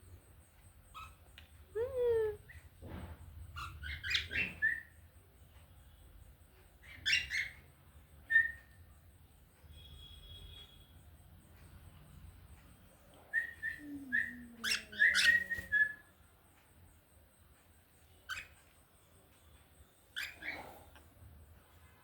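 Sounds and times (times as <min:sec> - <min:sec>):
cockatiel whistling and calling: 0:03.6 - 0:05.0, 0:08.3 - 0:08.7, 0:13.3 - 0:16.0.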